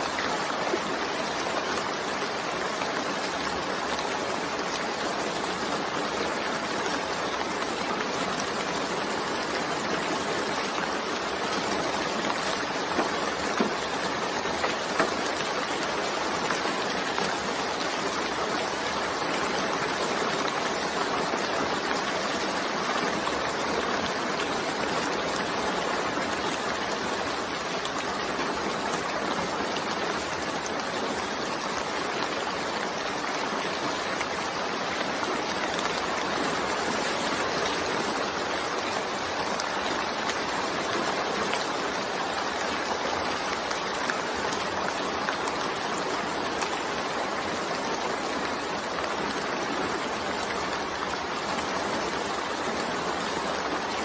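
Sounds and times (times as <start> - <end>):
steady rain falling: 0.0 - 54.0
sharp taps of raindrops: 11.2 - 17.9.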